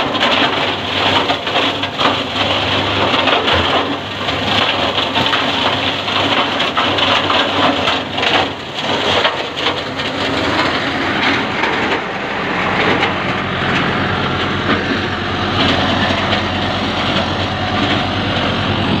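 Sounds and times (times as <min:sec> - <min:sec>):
shredder crunching branches: 0:00.0 - 0:19.0
tractor engine and shredder hum: 0:00.0 - 0:19.0.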